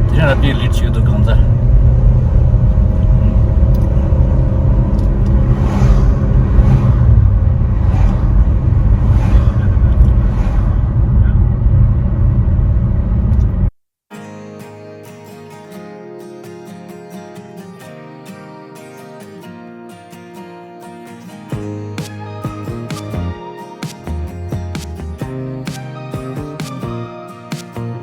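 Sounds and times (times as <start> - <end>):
motorcycles rumbling: 0.0 - 13.4
quiet acoustic guitar music: 14.1 - 28.0.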